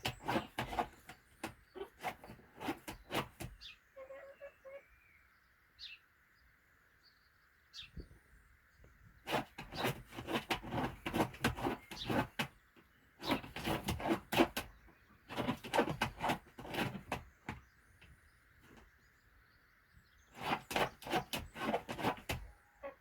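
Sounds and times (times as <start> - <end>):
hen scratching in bedding: 0.0 - 4.3, 9.2 - 17.6, 20.3 - 23.0.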